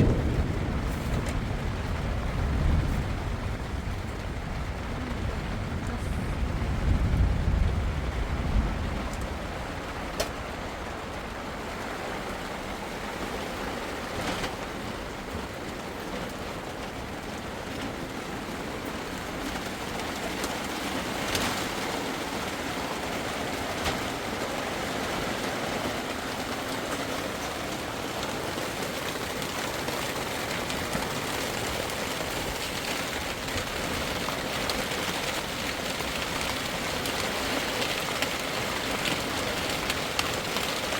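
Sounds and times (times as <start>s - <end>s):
low rumble: 0.0s - 10.0s
steady rain falling: 0.0s - 40.9s.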